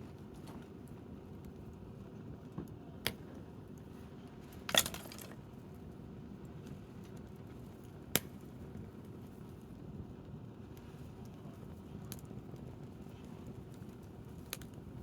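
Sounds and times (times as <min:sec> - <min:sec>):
low steady fire background: 0:00.0 - 0:15.0
campfire pops and crackles: 0:04.6 - 0:09.9, 0:10.6 - 0:15.0.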